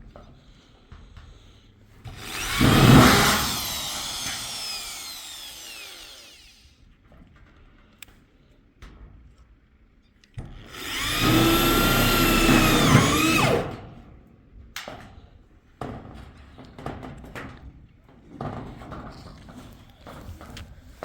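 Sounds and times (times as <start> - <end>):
small motor whining: 2.1 - 6.7, 10.6 - 13.7.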